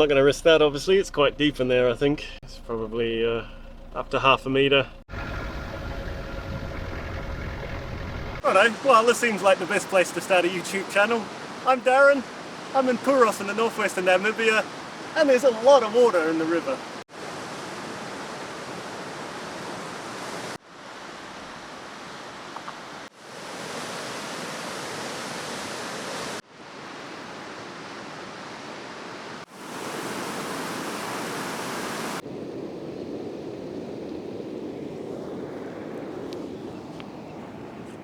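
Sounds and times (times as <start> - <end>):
floodwater rushing: 5.1 - 32.2.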